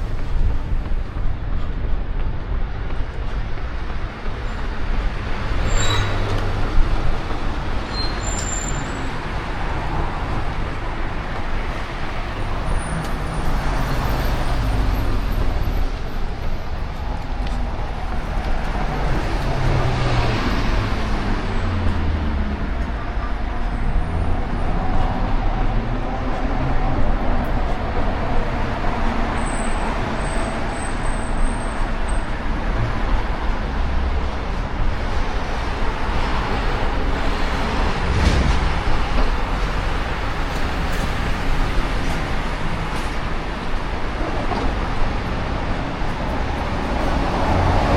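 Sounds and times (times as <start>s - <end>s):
low traffic rumble: 0.0s - 47.9s
vehicles passing: 0.0s - 47.9s.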